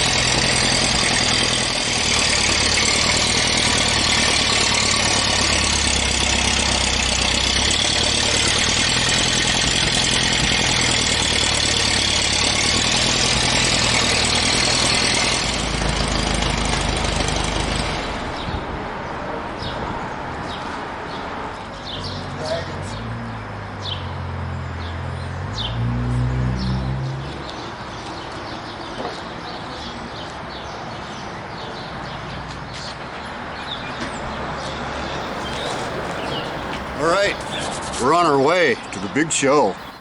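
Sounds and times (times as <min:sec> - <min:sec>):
car engine running: 0:00.0 - 0:17.9, 0:35.2 - 0:38.1, 0:38.8 - 0:40.0
loud rushing noise: 0:35.2 - 0:38.1.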